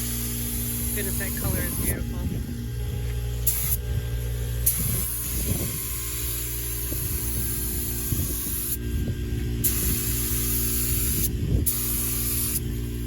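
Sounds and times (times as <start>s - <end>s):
air compressor humming: 0.0s - 13.0s
paint spray gun hissing: 3.4s - 3.8s, 4.6s - 8.8s, 9.6s - 13.0s.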